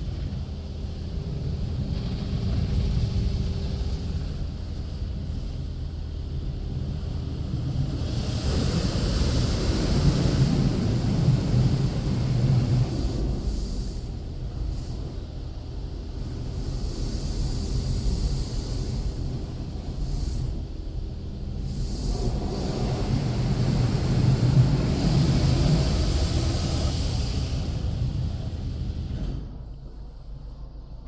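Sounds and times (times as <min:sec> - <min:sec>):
car wash spray rushing: 0:00.0 - 0:30.4
low rumble: 0:00.0 - 0:31.0.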